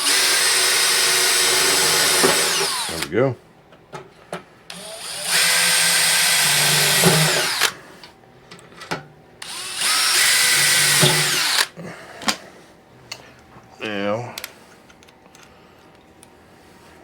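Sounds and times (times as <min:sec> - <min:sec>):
power drill running: 0:00.0 - 0:03.1, 0:04.7 - 0:07.8, 0:09.4 - 0:11.7.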